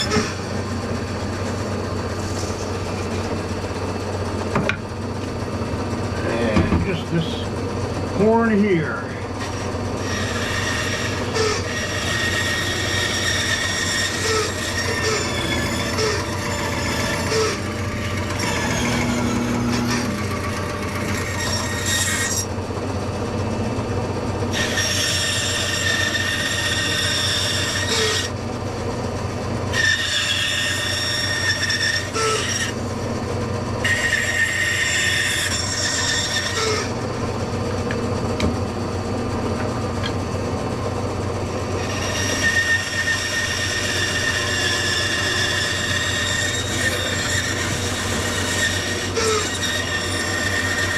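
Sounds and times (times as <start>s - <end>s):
wood rasping squeal against tool: 0.0s - 0.4s, 9.4s - 22.5s, 24.5s - 28.4s, 29.7s - 32.8s, 33.8s - 37.0s, 41.7s - 50.9s
power tool motor humming: 9.4s - 22.2s.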